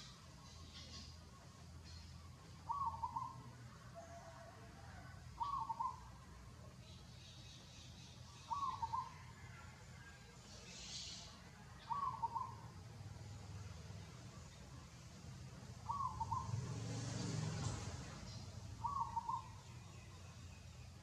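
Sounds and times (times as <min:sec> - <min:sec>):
bird calling: 0:02.6 - 0:03.5, 0:05.4 - 0:06.2, 0:07.5 - 0:09.5, 0:10.7 - 0:12.7, 0:15.8 - 0:16.6, 0:18.3 - 0:20.2.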